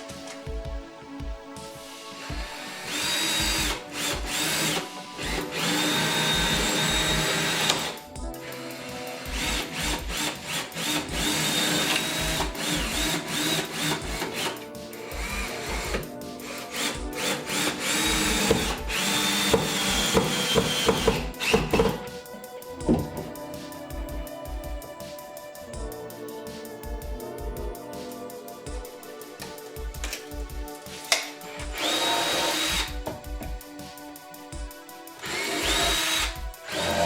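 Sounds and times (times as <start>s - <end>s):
background music with beat: 0.0s - 37.0s
power drill whining: 2.4s - 22.0s, 31.7s - 32.9s, 35.2s - 37.0s.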